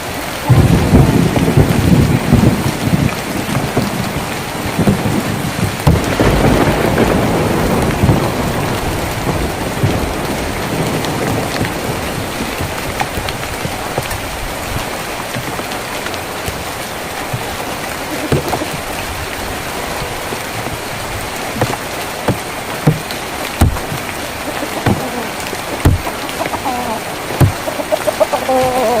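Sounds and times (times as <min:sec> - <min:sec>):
rain on a tin roof: 0:00.0 - 0:29.0
drops knocking on metal: 0:21.5 - 0:26.7, 0:27.4 - 0:29.0.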